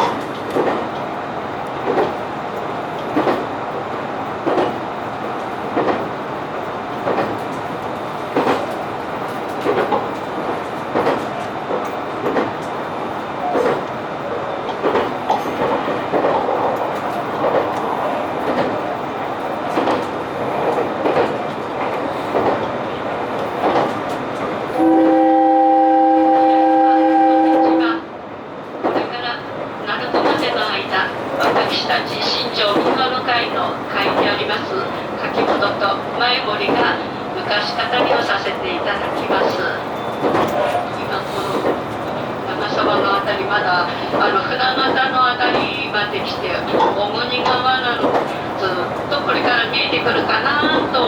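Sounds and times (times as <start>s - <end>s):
train wheels clicking over rails: 0.0s - 25.3s, 28.6s - 51.0s
train horn: 24.8s - 28.1s.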